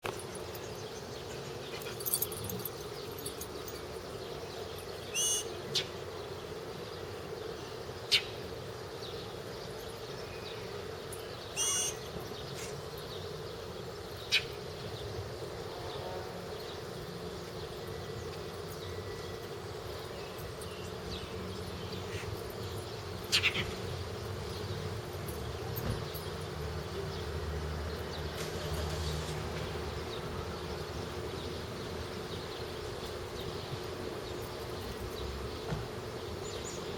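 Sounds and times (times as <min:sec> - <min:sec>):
bird harsh scolding calls: 0:05.1 - 0:05.9, 0:11.6 - 0:12.7, 0:23.3 - 0:23.8.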